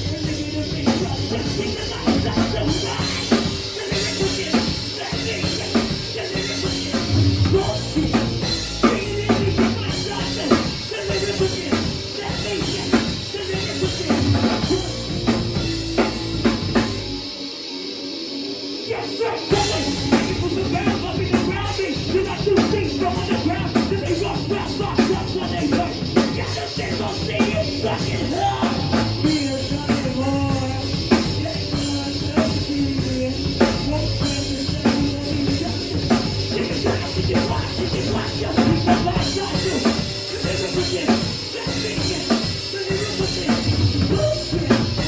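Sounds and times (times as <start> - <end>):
live rock band playing: 0.0 - 45.0.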